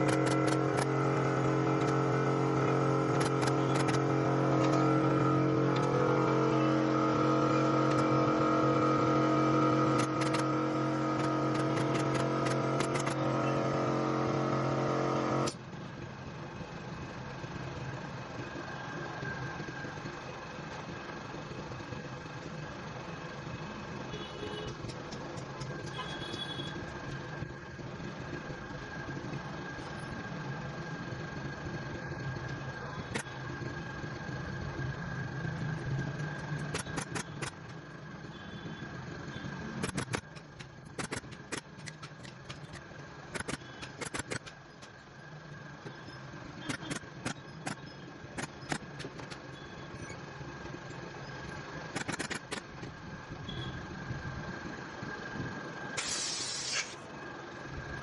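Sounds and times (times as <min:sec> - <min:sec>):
steady motor hum: 0:00.0 - 0:58.0.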